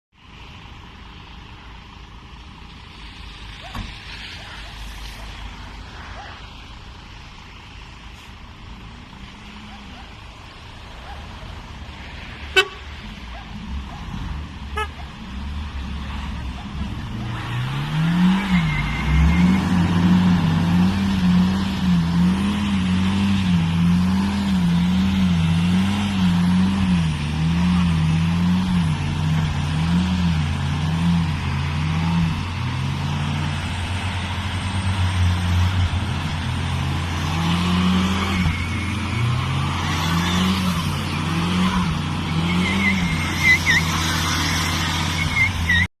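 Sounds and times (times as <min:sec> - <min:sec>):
car engine labouring under load: 0:00.1 - 0:45.9
short high squeaks: 0:42.3 - 0:45.9.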